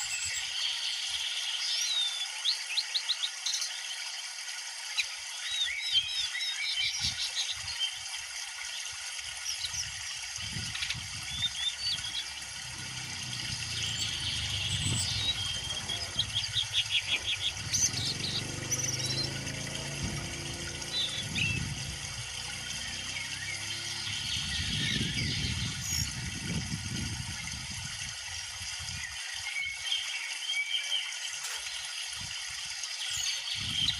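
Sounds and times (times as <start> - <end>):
low rumbling background noise: 10.5 - 27.9
songbird chirping and whistling: 13.6 - 19.3.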